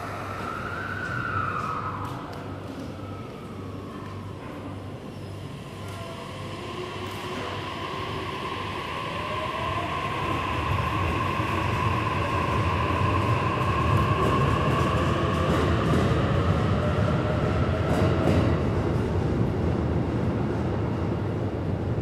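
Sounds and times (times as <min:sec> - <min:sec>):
electric train rumble: 0:00.0 - 0:22.0
train high whine: 0:00.0 - 0:22.0.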